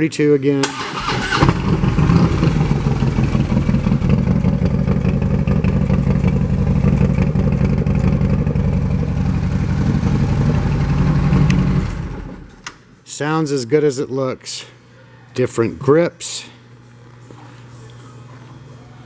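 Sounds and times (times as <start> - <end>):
motorcycle engine idling: 1.5 - 12.5.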